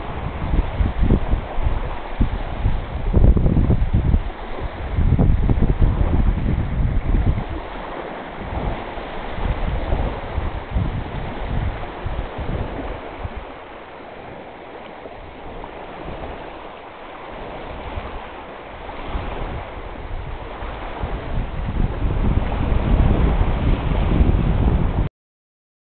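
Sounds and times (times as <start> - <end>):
waves rushing: 0.0 - 25.1
wind buffeting microphone: 0.0 - 25.1.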